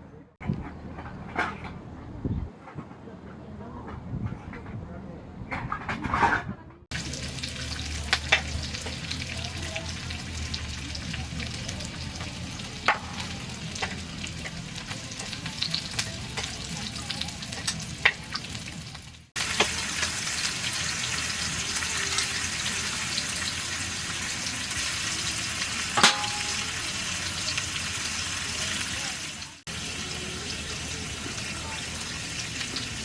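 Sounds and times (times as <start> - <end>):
food sizzling in a pan: 6.9 - 33.0.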